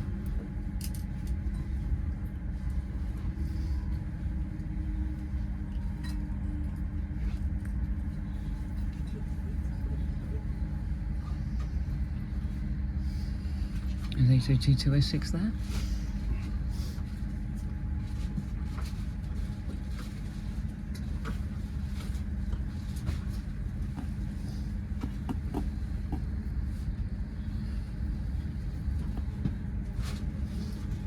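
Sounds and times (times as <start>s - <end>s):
train idling hum: 0.0s - 31.0s.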